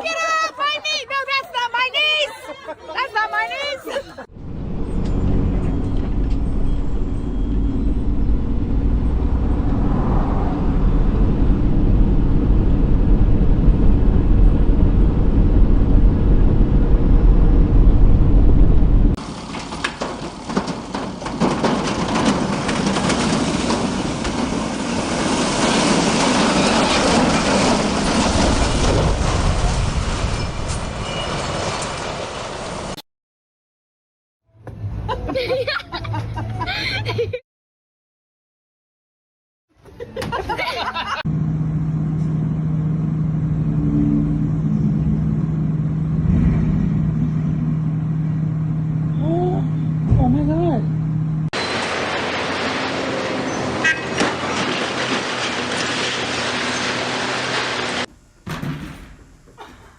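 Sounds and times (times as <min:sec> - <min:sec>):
vehicle heavy low rumble: 0:04.2 - 0:33.0, 0:41.2 - 0:58.3
road and wind noise hiss: 0:51.6 - 0:58.4.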